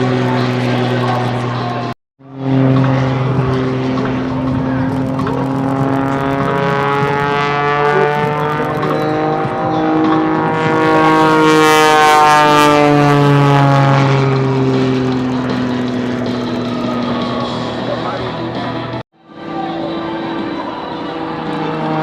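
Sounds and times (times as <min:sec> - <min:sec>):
propeller airplane engine: 0:00.0 - 0:22.0.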